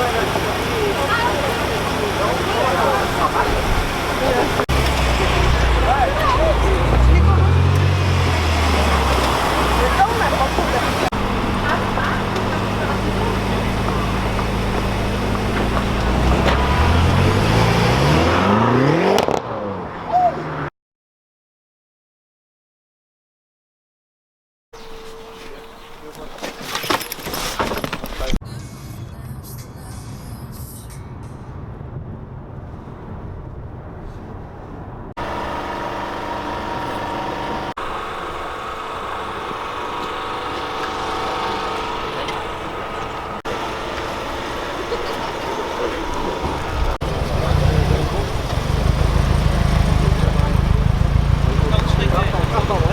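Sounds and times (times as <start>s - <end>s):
car engine idling and revving: 0.0s - 20.7s, 35.2s - 52.9s.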